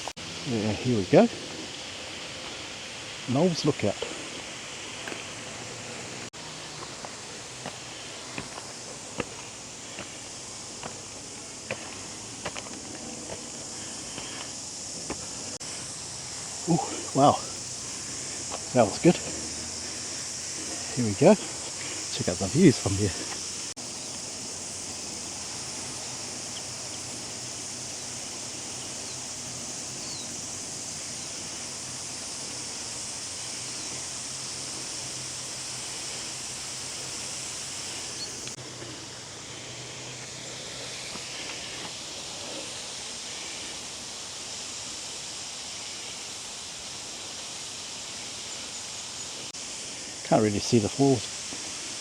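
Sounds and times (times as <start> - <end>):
high-pitched insect buzzing: 0.0 - 38.6.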